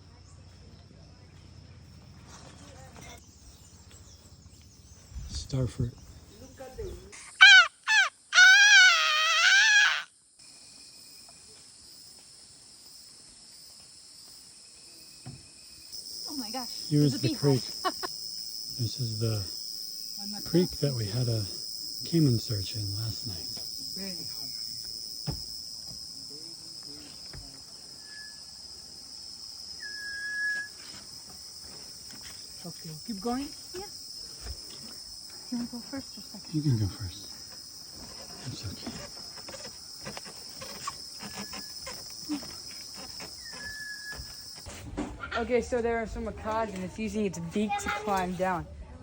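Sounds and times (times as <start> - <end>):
high insect drone: 0.0 - 44.8
animal cries: 7.2 - 10.1
long wavering animal call: 7.4 - 10.1
whistled note: 29.8 - 30.8.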